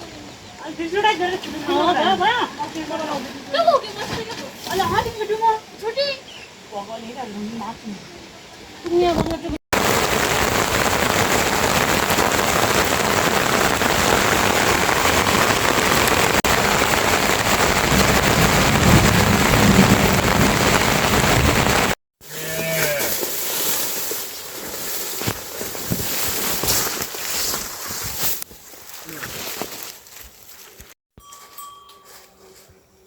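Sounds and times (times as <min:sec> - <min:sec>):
heavy rain pouring: 0:09.7 - 0:22.6.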